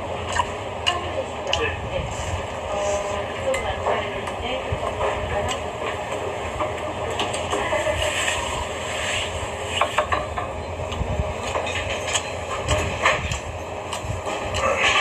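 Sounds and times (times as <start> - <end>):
man chewing food: 0.0 - 1.6, 10.9 - 15.0
steady low rumble: 0.0 - 15.0.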